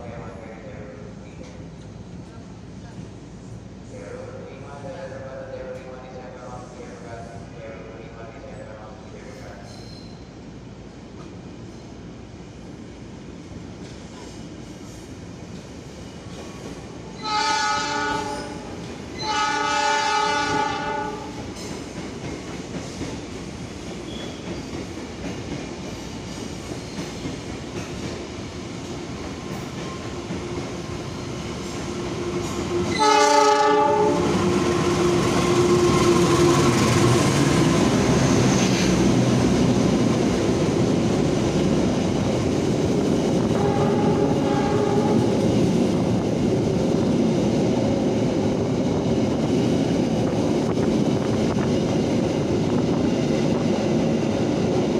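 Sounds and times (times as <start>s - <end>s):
train rumble and wheel clatter: 0.0s - 54.9s
train horn blasts: 17.2s - 21.4s, 32.3s - 36.6s, 43.5s - 45.3s.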